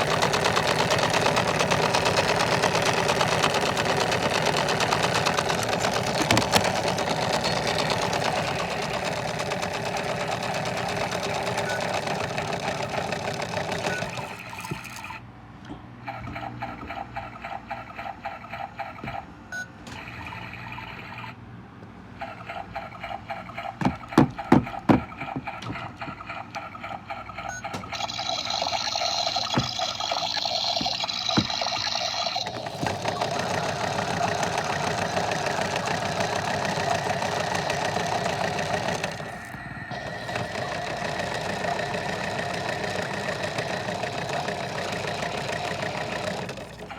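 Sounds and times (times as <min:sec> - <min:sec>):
washing machine running: 0:00.0 - 0:15.3, 0:15.9 - 0:21.4, 0:22.2 - 0:46.9
sharp knocks: 0:23.8 - 0:26.3.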